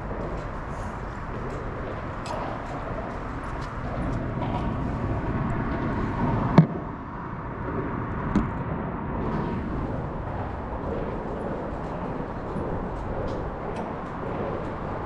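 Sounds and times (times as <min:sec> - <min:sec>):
low rumble with faint hum: 0:00.0 - 0:15.0.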